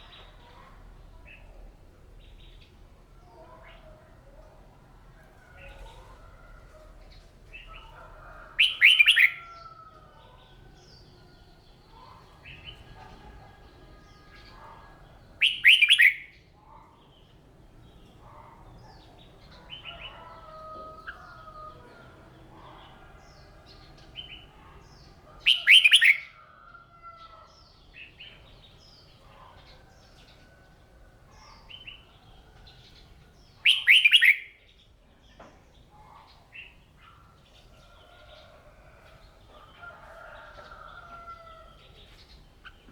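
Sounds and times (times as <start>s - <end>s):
bird chirps and twitters: 15.4s - 16.2s, 33.5s - 34.5s
bulbul singing: 15.4s - 16.3s, 33.6s - 34.6s.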